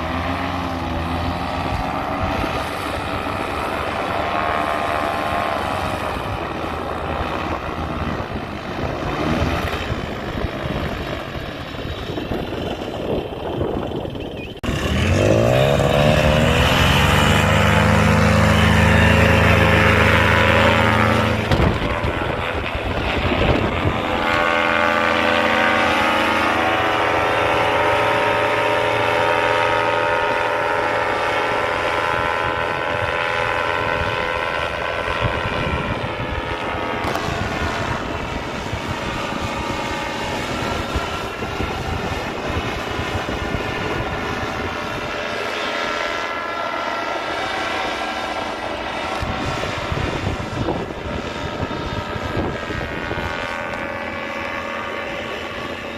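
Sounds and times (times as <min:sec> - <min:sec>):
paramotor engine droning: 0:00.0 - 0:55.9.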